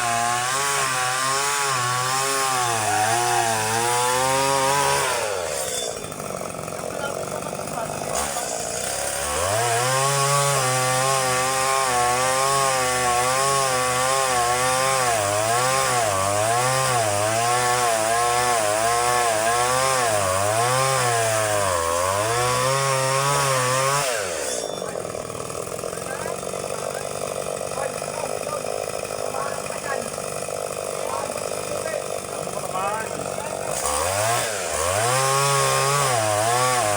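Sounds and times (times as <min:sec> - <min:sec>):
chainsaw cutting wood: 0:00.0 - 0:36.9.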